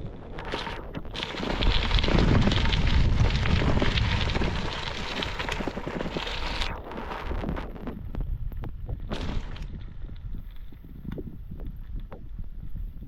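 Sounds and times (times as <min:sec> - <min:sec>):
bike tyres crunching on gravel: 0:00.1 - 0:12.7.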